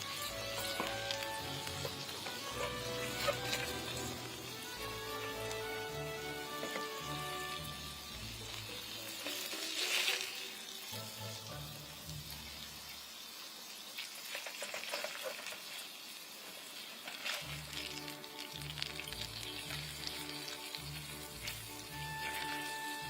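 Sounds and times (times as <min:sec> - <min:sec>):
soft background music: 0:00.0 - 0:13.2, 0:17.2 - 0:23.0
patties sizzling: 0:00.0 - 0:23.0
fire pops and crackles: 0:00.1 - 0:04.8, 0:17.1 - 0:22.9.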